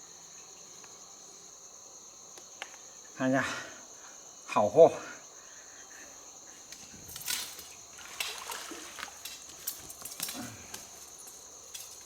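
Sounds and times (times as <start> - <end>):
crickets chirping: 0.0 - 12.0
handling rustles and knocks: 6.7 - 12.0.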